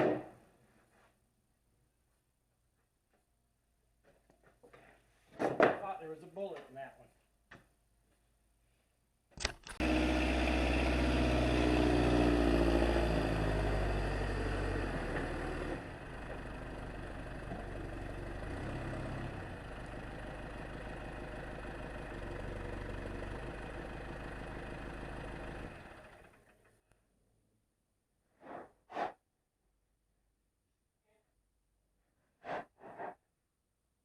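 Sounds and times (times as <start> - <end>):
sawmill engine running: 9.8 - 26.6.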